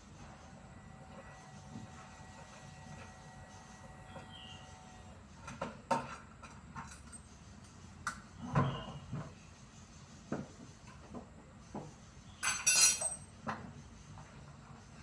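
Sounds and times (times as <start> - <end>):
tools and metal parts clinking: 6.5 - 7.3, 12.4 - 13.4.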